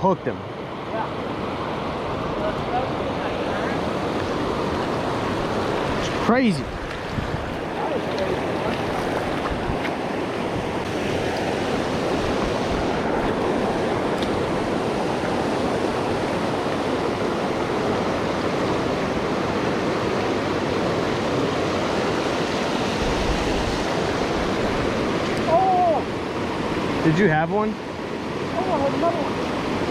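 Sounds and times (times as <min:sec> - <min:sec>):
river water rushing over rocks: 0:00.4 - 0:29.9.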